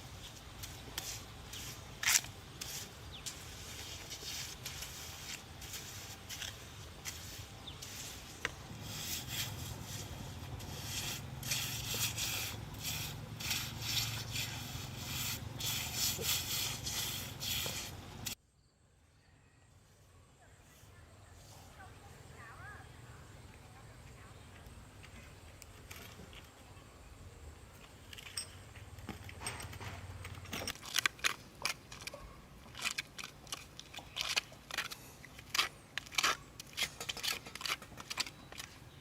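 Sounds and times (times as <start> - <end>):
rubbing or scraping strokes: 0.0 - 18.4.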